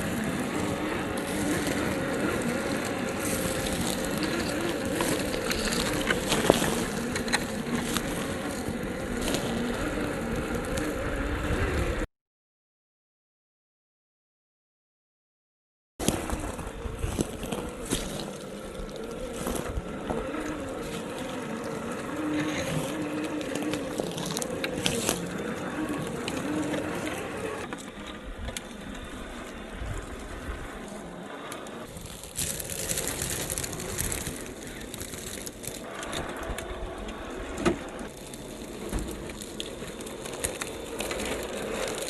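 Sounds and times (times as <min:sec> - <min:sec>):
tyres crunching on forest ground: 0:00.0 - 0:11.1, 0:16.0 - 0:42.0
electric motor and gears whining: 0:00.0 - 0:12.1, 0:16.0 - 0:42.0.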